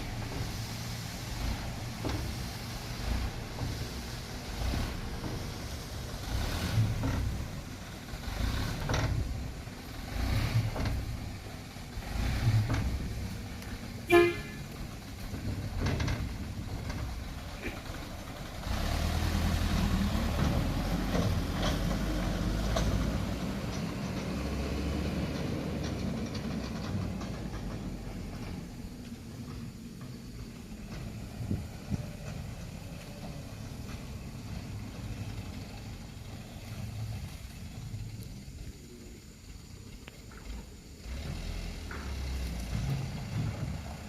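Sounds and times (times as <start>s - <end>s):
dump truck diesel engine: 0.0s - 44.0s
truck horn toot: 14.0s - 14.7s.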